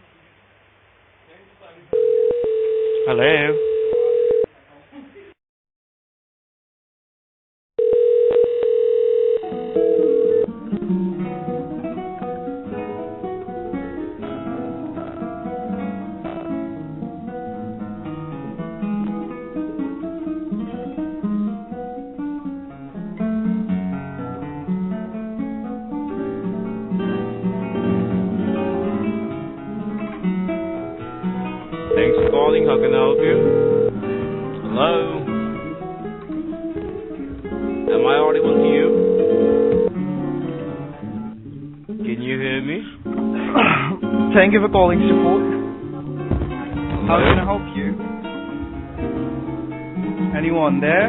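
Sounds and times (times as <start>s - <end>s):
steady telephone tone: 1.9s - 4.5s, 7.8s - 10.5s, 31.9s - 34.0s, 37.9s - 39.9s
acoustic guitar hold music: 10.4s - 51.0s.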